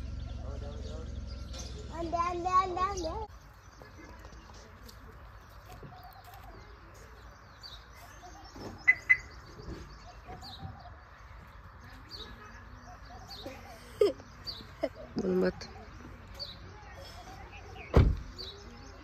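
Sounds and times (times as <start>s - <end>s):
birds chirping and calling: 0.0s - 19.0s
loud high bird chirps: 7.3s - 13.5s.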